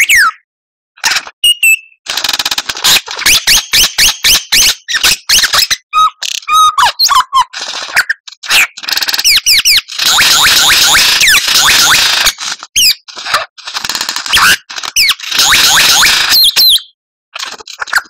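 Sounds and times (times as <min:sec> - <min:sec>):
bird whistled song: 0:01.4 - 0:02.0, 0:03.2 - 0:08.7, 0:14.3 - 0:17.0
bird harsh rattling song: 0:01.4 - 0:18.0.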